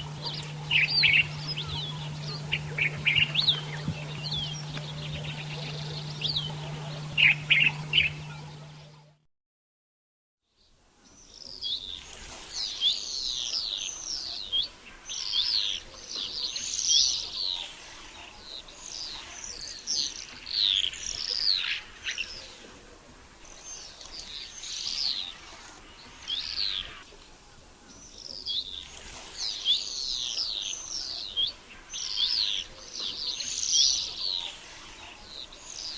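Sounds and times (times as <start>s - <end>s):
swifts screaming: 0.0s - 9.1s.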